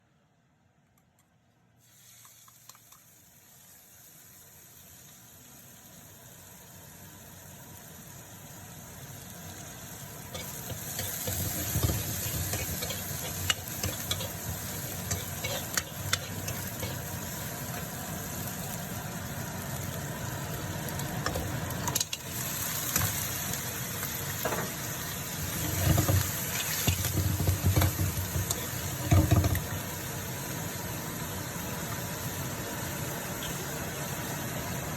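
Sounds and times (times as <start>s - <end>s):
food sizzling in a hot pan: 1.8s - 34.9s
spatula knocking and scraping pan: 10.4s - 17.0s, 25.5s - 29.7s.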